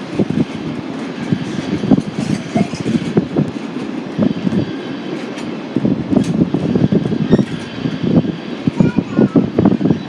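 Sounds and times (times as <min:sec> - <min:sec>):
train rumbling on track: 0:00.0 - 0:10.0.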